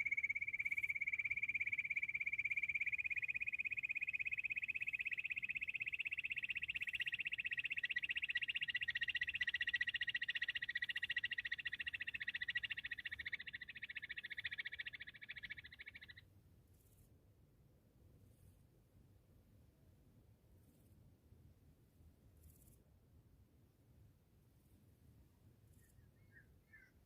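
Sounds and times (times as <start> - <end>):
quail high-pitched trill: 0.0 - 16.2.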